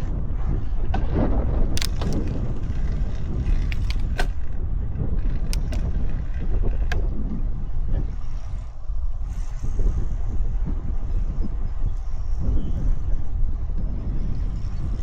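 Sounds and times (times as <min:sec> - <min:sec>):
road rumble: 0:00.0 - 0:08.8
wind buffeting microphone: 0:00.0 - 0:15.0
sharp clicks or rattles: 0:01.7 - 0:04.6, 0:05.2 - 0:07.0.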